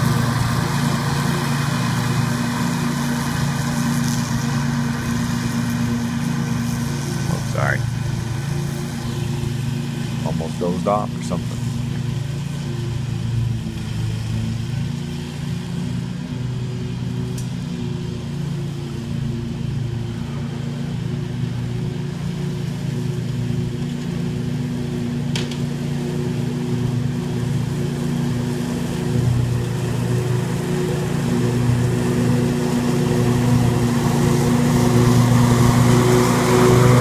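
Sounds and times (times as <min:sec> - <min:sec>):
lawn mower running: 0:00.0 - 0:37.0.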